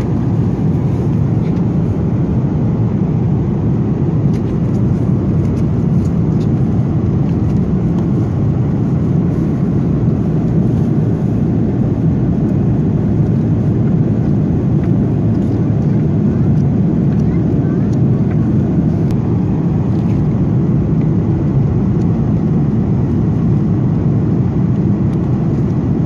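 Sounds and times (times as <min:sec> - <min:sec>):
jet engine cabin rumble: 0:00.0 - 0:26.0.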